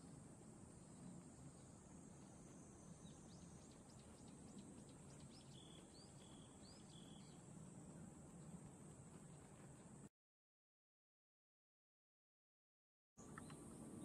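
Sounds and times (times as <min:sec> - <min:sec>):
bird song: 0:00.0 - 0:10.0, 0:13.2 - 0:14.0.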